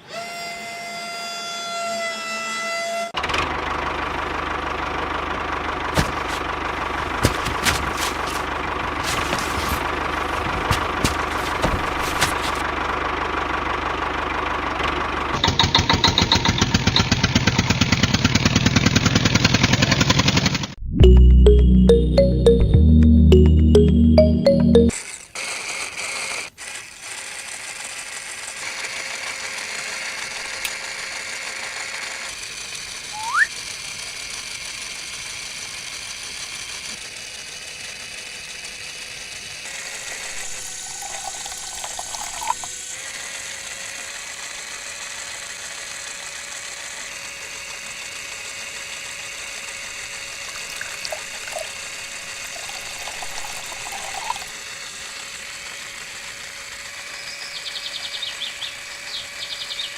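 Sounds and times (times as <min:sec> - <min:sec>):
small electric motor whine: 0:00.0 - 0:03.2, 0:25.0 - 0:59.9.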